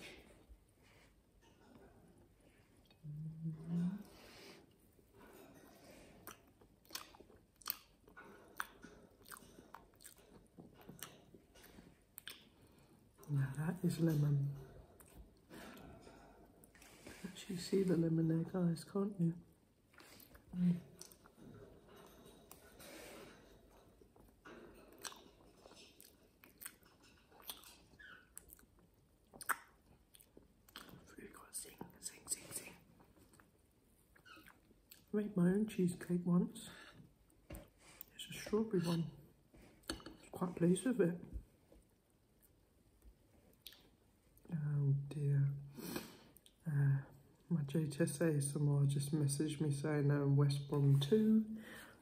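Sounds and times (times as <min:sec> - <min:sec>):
person chewing cheesecake: 0:04.7 - 0:13.2, 0:19.8 - 0:31.1
wet mouth clicks and lip smacks: 0:06.2 - 0:08.0, 0:12.2 - 0:12.5, 0:29.3 - 0:31.0, 0:43.5 - 0:43.9.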